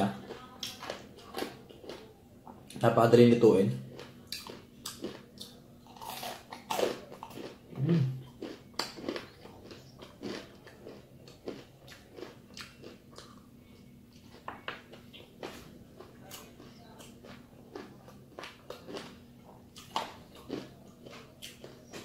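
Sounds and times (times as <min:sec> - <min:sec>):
crunching fried chicken skin: 0:03.9 - 0:07.6, 0:08.2 - 0:13.4, 0:14.3 - 0:19.2, 0:19.8 - 0:22.0.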